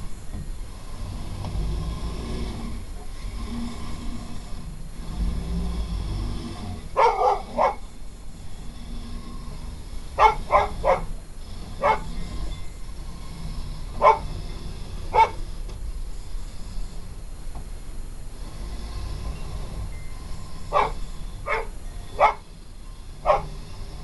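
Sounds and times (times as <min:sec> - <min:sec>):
steady low rumble: 0:00.0 - 0:24.0
dog barking: 0:07.0 - 0:07.8, 0:10.2 - 0:11.1, 0:11.8 - 0:12.1, 0:14.0 - 0:14.3, 0:15.1 - 0:15.4, 0:20.7 - 0:22.4, 0:23.2 - 0:23.5.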